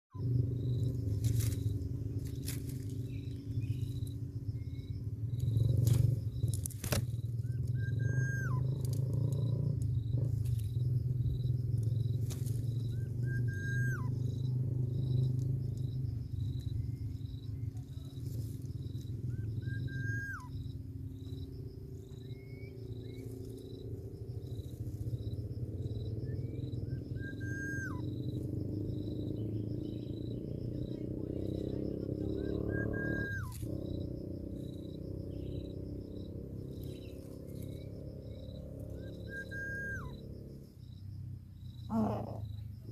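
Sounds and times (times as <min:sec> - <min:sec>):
constant low rumble: 0:00.1 - 0:42.9
insect pulsing call: 0:00.1 - 0:42.9
bird whistled call: 0:07.4 - 0:08.9, 0:12.9 - 0:14.3, 0:19.3 - 0:20.7, 0:26.3 - 0:28.2, 0:31.4 - 0:33.6, 0:38.9 - 0:40.3.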